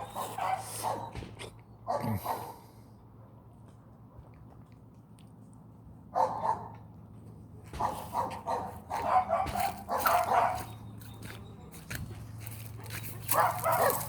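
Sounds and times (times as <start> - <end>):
dog barking: 0.0 - 1.2, 1.9 - 2.6, 6.1 - 6.8, 7.8 - 10.8, 13.2 - 14.0.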